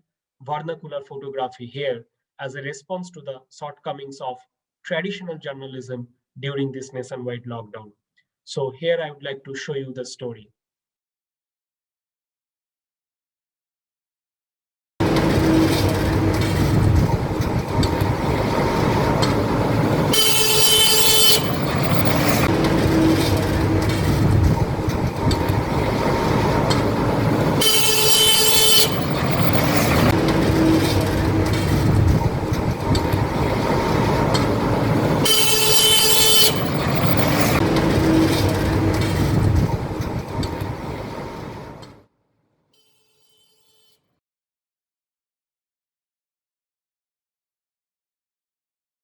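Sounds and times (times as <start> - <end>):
highway traffic rumbling: 15.0 - 42.0
vehicle horn blast: 18.5 - 24.0, 24.8 - 31.7, 33.6 - 38.9.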